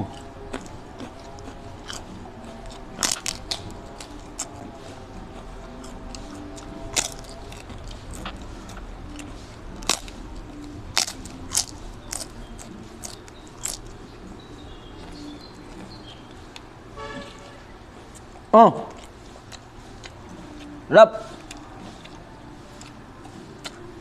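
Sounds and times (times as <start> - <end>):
crunching flatbread: 0.0 - 18.3.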